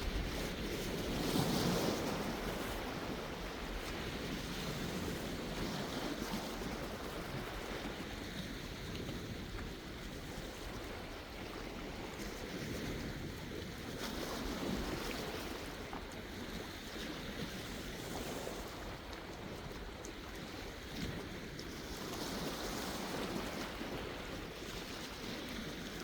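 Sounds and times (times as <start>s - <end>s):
sea waves breaking: 0.0s - 26.0s.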